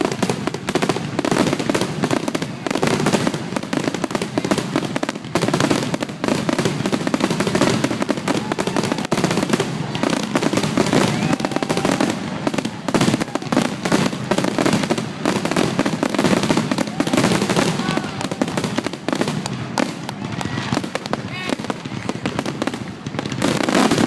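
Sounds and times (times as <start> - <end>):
fireworks bursting: 0.0 - 24.0.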